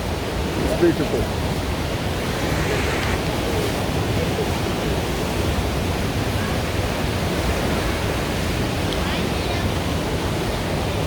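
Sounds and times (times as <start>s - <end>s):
waterfall rushing: 0.1s - 8.1s.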